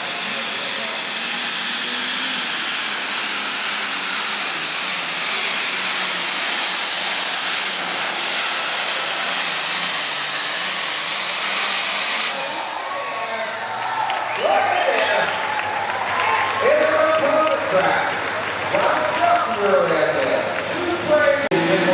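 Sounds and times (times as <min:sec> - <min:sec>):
tractor engine roaring: 0:00.0 - 0:21.9
high steady whine: 0:20.3 - 0:21.9.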